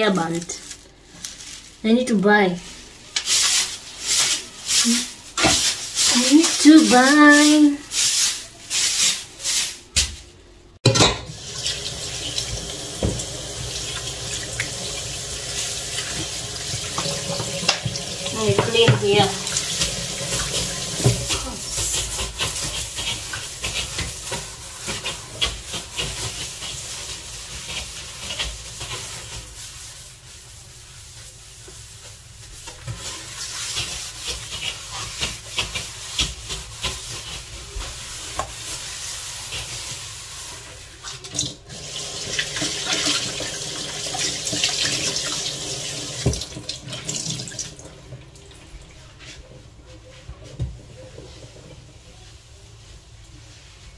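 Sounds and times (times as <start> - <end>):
tap water running into sink: 11.2 - 21.4, 41.1 - 48.7.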